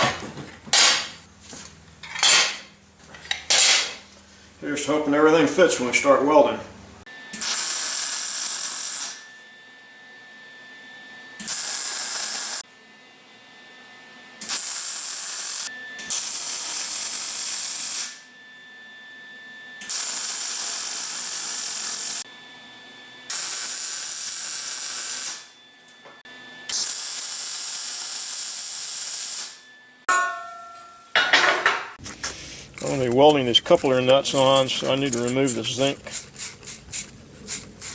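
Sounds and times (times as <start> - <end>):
arc welder hissing: 7.3 - 9.2, 11.4 - 12.6, 14.4 - 18.2, 19.8 - 22.2, 23.3 - 25.5, 26.7 - 29.6, 32.0 - 37.9.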